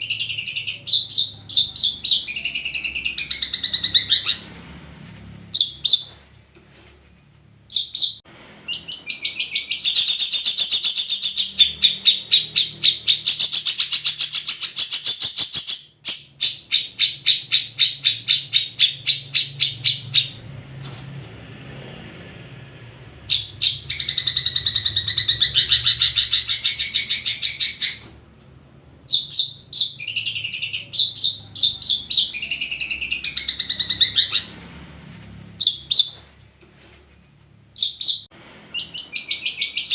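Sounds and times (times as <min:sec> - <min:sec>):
bird chattering song: 0:00.0 - 0:04.5, 0:07.7 - 0:20.4, 0:23.2 - 0:28.1, 0:29.1 - 0:34.6, 0:35.6 - 0:36.2, 0:37.8 - 0:39.9.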